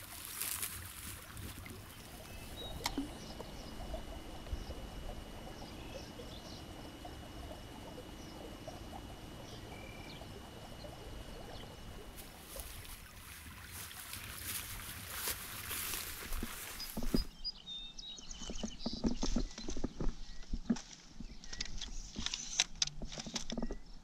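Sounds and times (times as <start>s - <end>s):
faint trickling water: 0.0s - 17.3s
faint chirps: 0.2s - 22.4s
thin steady high tone: 1.7s - 13.2s.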